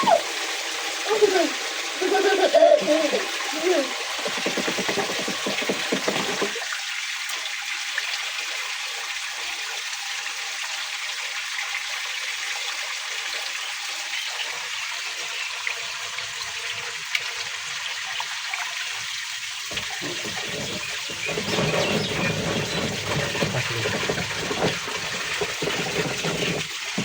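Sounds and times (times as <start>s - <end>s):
water rushing in a whirlpool: 0.0s - 7.1s, 19.7s - 27.0s.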